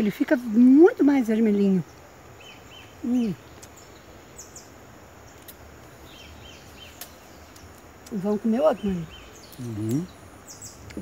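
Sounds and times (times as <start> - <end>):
outdoor background hiss: 0.0 - 11.0
faint bird chirps: 1.0 - 11.0
person murmuring: 9.6 - 10.1.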